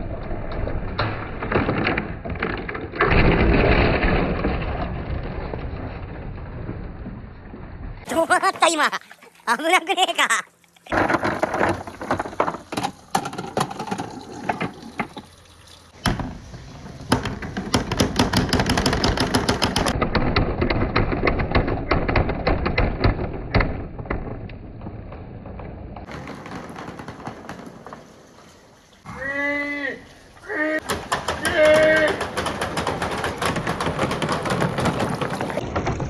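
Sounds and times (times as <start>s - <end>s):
person speaking: 8.1s - 10.6s.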